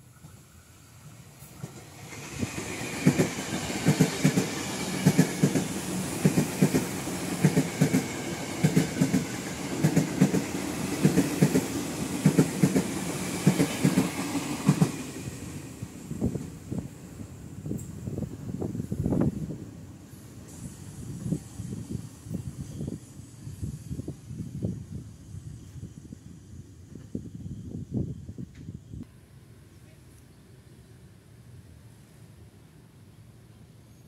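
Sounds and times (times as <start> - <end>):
train rumbling past: 0.0 - 29.7
wheels clacking over rail joints: 1.5 - 15.0.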